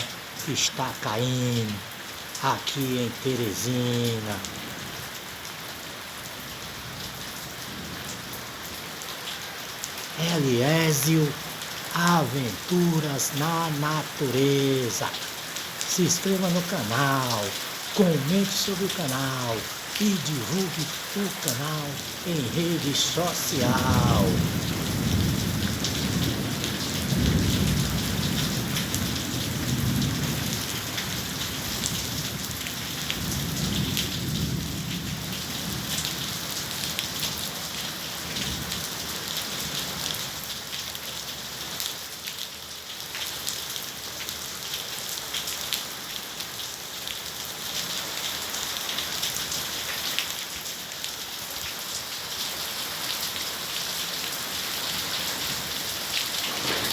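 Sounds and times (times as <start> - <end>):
heavy rain on hard surfaces: 0.0 - 56.9
thunder rumbling: 21.9 - 30.5, 56.4 - 56.9.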